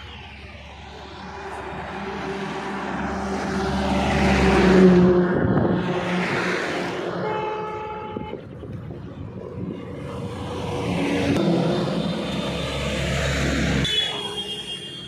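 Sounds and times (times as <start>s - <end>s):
highway traffic: 0.0s - 15.0s
vehicle passing close: 0.6s - 7.2s, 8.9s - 13.9s.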